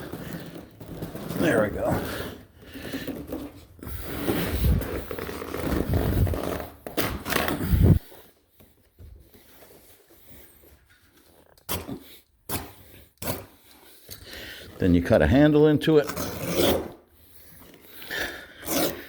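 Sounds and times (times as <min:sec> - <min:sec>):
carpet tearing and scraping: 0:00.0 - 0:08.1, 0:16.0 - 0:19.0
carpet rustling: 0:00.0 - 0:12.2.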